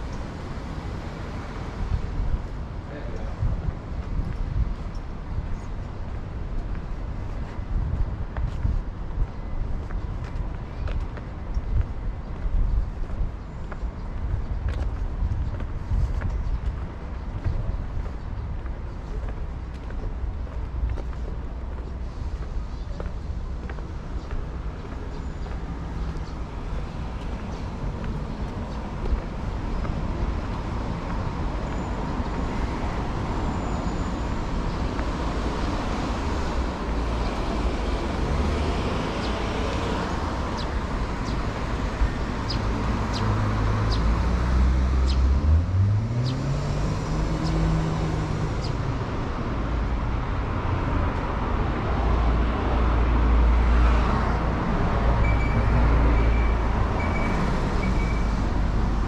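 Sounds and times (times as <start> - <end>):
vehicles passing on street: 0.0 - 59.0
engine revving as car pulls away: 37.1 - 40.4, 42.8 - 49.0.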